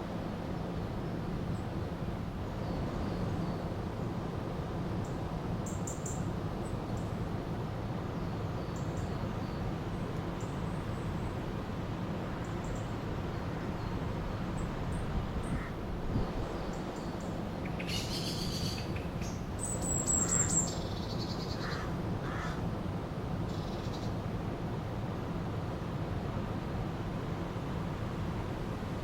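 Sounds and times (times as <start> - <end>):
small birds chirping: 16.2 - 21.8.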